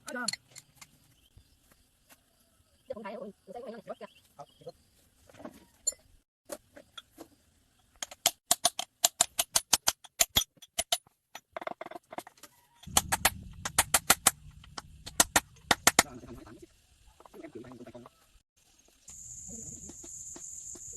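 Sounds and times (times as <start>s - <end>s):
rapid sharp knocks: 12.9s - 16.2s
low steady rumble: 12.9s - 17.1s.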